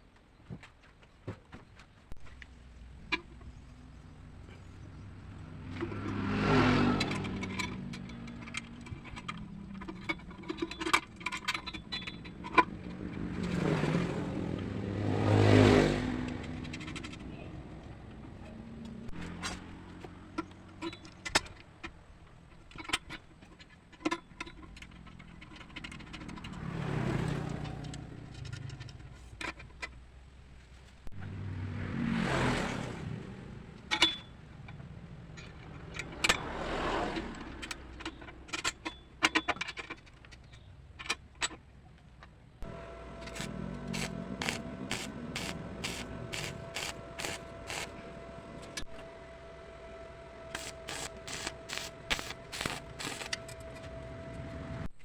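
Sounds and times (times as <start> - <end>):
steady hum: 42.6 - 54.9.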